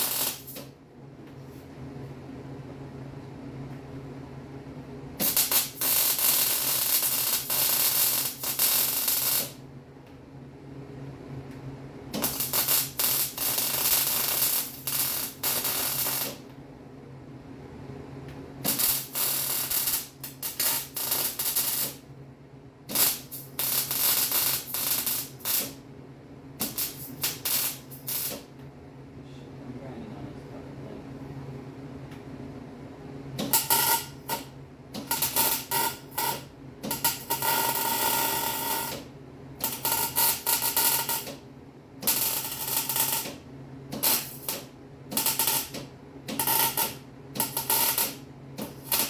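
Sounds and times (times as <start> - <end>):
arc welding crackling sizzle: 0.0 - 0.7, 5.2 - 9.6, 12.1 - 16.4, 18.6 - 22.1, 22.9 - 25.8, 26.6 - 28.5, 33.4 - 41.4, 42.0 - 49.0
steady low hum: 0.0 - 49.0.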